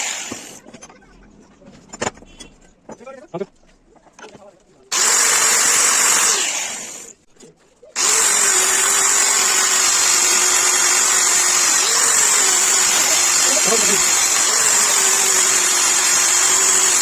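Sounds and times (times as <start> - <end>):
power tool motor whining: 0.0 - 0.6, 4.9 - 7.1, 8.0 - 17.0.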